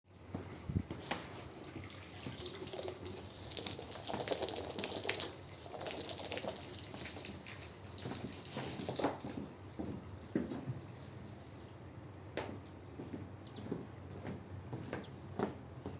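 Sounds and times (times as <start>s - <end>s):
water splashing on carpet: 1.3s - 9.6s.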